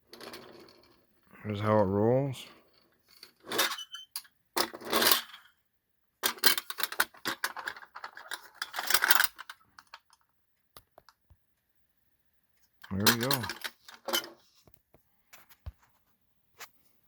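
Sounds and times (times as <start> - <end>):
toy truck rattling across surface: 6.2 - 10.2, 12.8 - 14.5.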